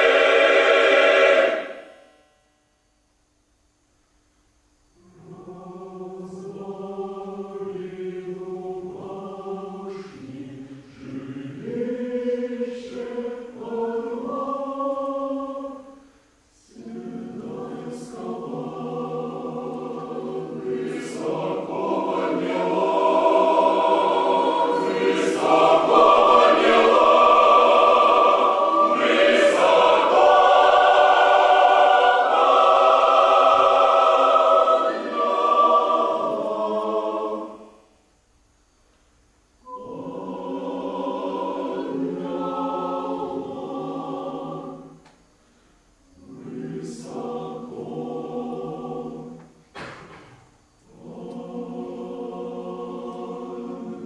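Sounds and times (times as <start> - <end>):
choir singing: 0.0 - 2.1, 5.0 - 37.9, 39.6 - 45.2, 46.1 - 54.0.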